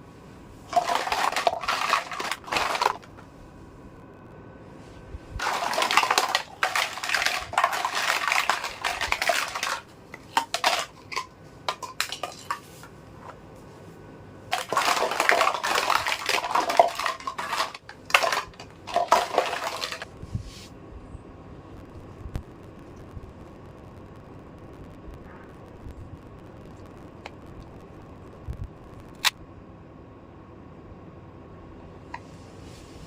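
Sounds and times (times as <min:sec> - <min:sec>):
plastic toy pieces clattering: 0:00.7 - 0:03.2, 0:05.4 - 0:12.7, 0:14.5 - 0:20.1.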